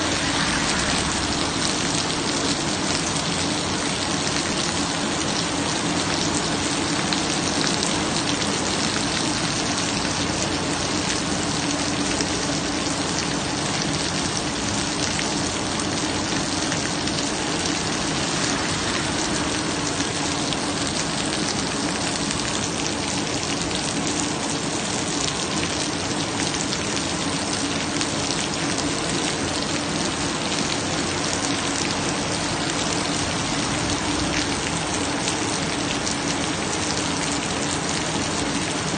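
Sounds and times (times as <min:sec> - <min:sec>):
low hum: 0:00.0 - 0:04.0, 0:16.8 - 0:22.0
rain pattering: 0:00.0 - 0:38.9.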